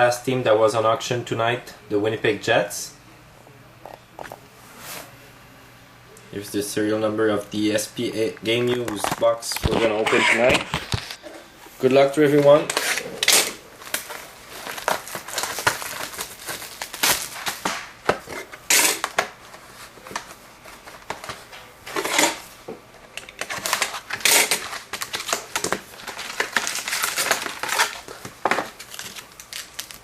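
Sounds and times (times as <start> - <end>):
foil wrappers tearing and crinkling: 12.4 - 22.5, 23.1 - 30.0.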